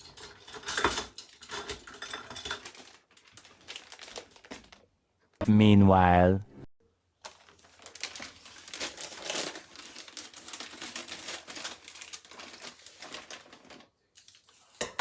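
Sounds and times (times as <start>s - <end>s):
plastic packaging crinkling: 0.2s - 4.9s, 7.2s - 14.8s.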